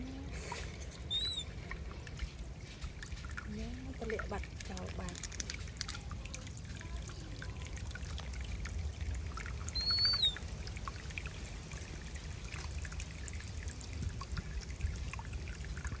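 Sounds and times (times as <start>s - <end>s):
small water splashes: 0.0s - 16.0s
water pouring and trickling: 0.0s - 16.0s
short high whistled call: 1.1s - 1.5s, 9.8s - 10.4s.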